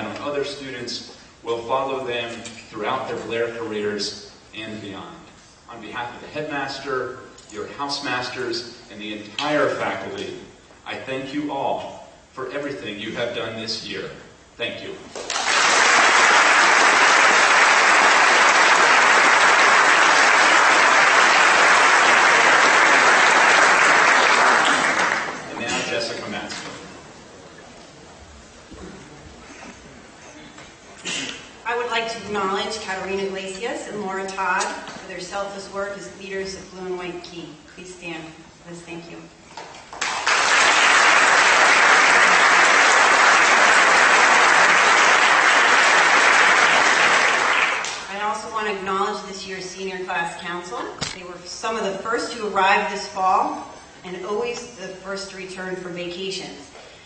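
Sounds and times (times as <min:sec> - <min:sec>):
large audience applauding: 0:15.1 - 0:25.5, 0:39.9 - 0:48.1.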